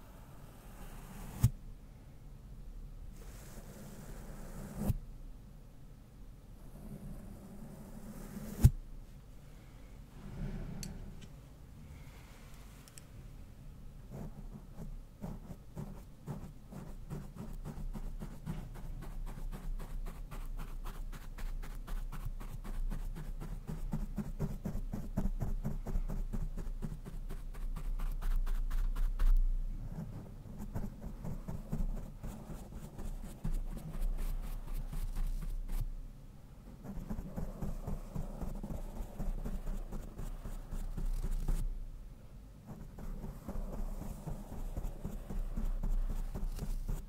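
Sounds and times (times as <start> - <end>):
brush scratching on microphone: 14.1 - 29.4, 30.0 - 35.9, 36.8 - 41.7, 42.7 - 47.0.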